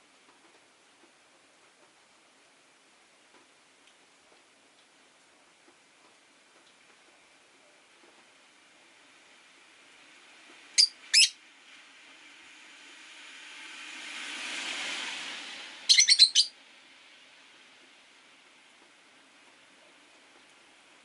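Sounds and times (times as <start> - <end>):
lovebirds chirping: 10.8 - 11.4, 15.9 - 16.5
passing car: 11.4 - 19.3.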